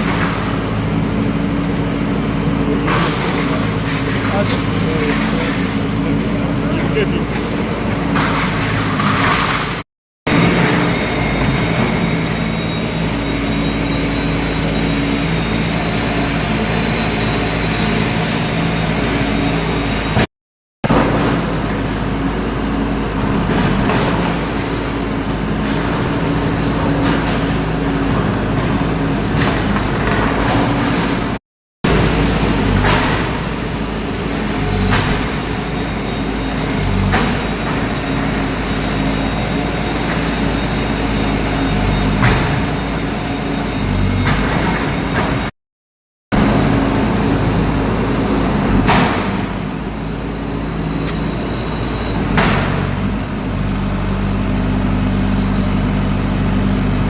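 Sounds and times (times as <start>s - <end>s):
heavy machinery engine running: 0.0s - 45.5s, 46.3s - 57.0s.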